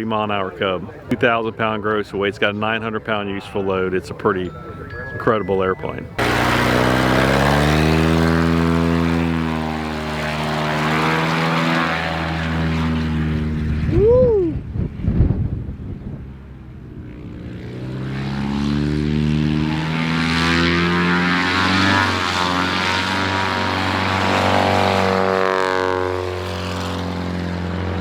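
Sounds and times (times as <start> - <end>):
propeller airplane engine passing: 6.0 - 28.0.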